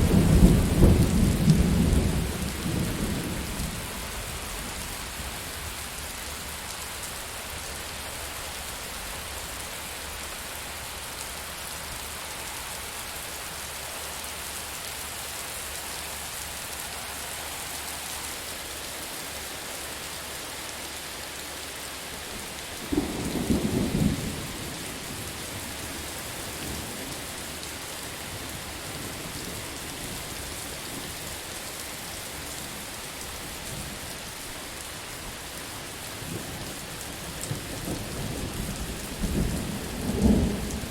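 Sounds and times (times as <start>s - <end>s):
thunder crack and rumble: 0.0s - 4.8s, 37.4s - 40.9s
heavy rain falling: 0.0s - 40.9s.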